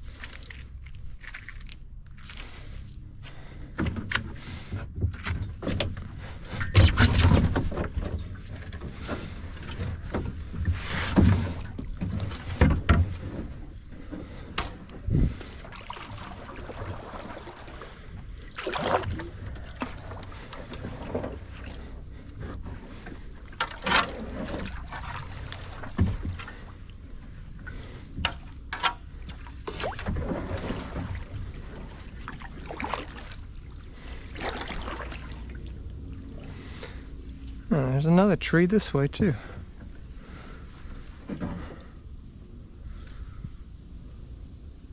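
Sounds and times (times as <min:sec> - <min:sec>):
low steady rumble: 0:00.0 - 0:44.9
paddle swishing through water: 0:02.4 - 0:37.7.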